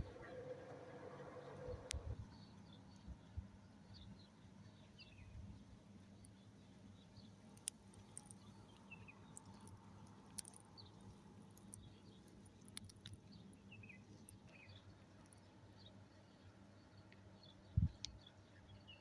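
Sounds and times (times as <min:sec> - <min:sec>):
small birds chirping: 0:00.0 - 0:19.0
sharp ticks: 0:07.5 - 0:14.6.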